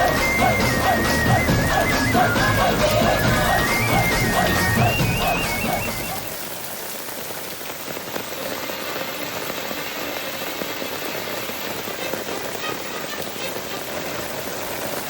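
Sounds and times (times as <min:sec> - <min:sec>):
song: 0:00.0 - 0:06.3
rain pattering on surfaces: 0:00.0 - 0:15.0.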